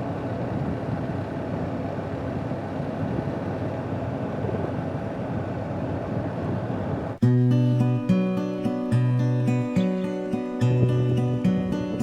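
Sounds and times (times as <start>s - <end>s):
motorcycle engine and wind rush: 0.0s - 12.0s
strummed acoustic guitar music: 7.2s - 12.0s.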